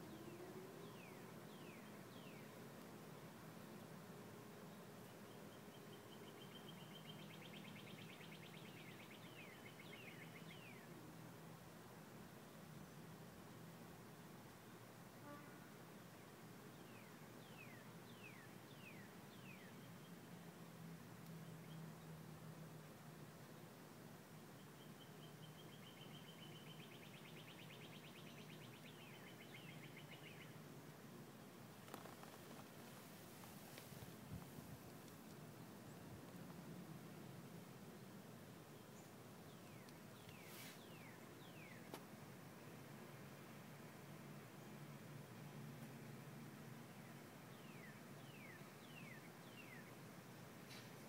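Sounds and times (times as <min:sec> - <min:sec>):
small songbird singing: 0:00.0 - 0:02.6, 0:04.6 - 0:10.9, 0:16.7 - 0:20.4, 0:24.5 - 0:30.6, 0:38.7 - 0:42.0, 0:46.9 - 0:50.0
faint click: 0:21.2 - 0:21.4, 0:39.8 - 0:40.9.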